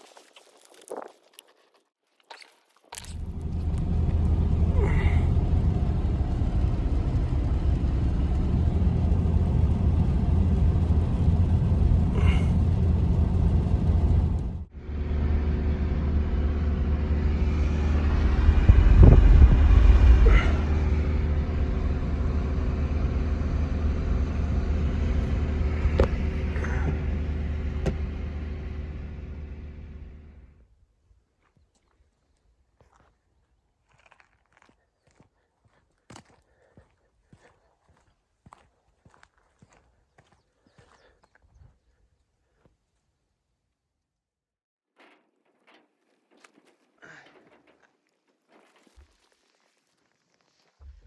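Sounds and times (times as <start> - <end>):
motor vehicle rumble: 3.0 - 30.6.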